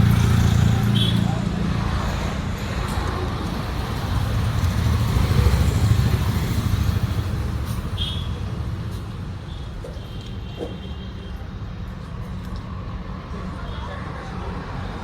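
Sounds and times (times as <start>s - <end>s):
vehicle engine rumbling: 0.0s - 10.9s.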